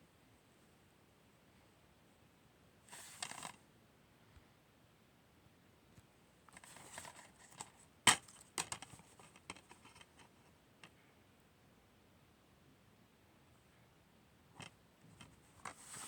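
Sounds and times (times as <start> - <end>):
soft rustle: 2.9 - 3.6, 6.5 - 7.8, 15.2 - 16.0.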